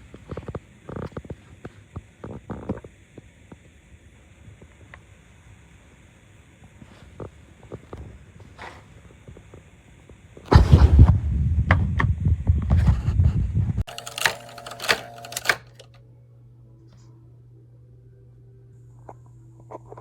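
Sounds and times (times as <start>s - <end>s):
steady low hum: 0.0s - 20.0s
quick sharp clicks: 13.9s - 16.0s.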